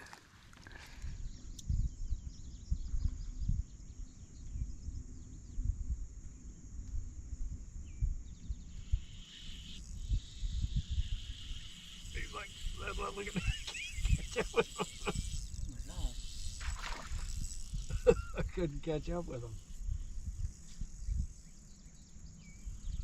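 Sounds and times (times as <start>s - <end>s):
wind buffeting microphone: 1.0s - 9.0s.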